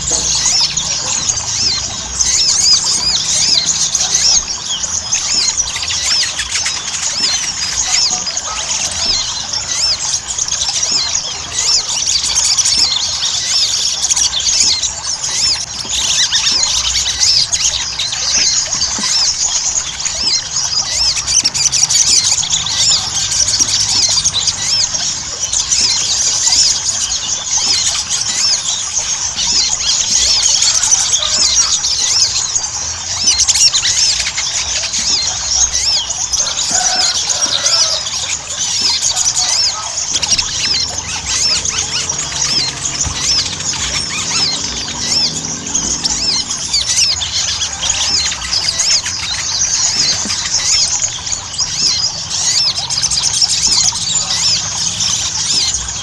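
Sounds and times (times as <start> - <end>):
bird singing high chirps: 0.0 - 56.0.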